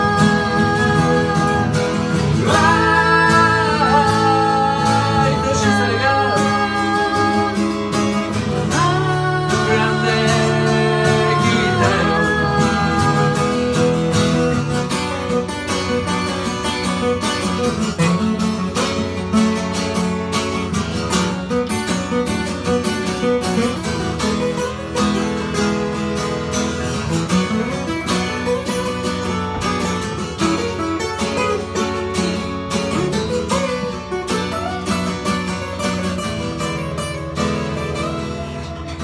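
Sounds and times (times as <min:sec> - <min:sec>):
person singing: 0:00.0 - 0:14.7
acoustic guitar playing: 0:00.0 - 0:39.0.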